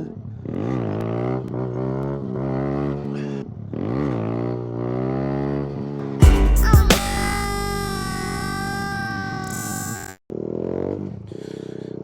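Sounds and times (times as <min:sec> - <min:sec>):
motorcycle engine revving: 0:00.0 - 0:08.9, 0:10.3 - 0:12.0
loud low boom: 0:06.2 - 0:09.0.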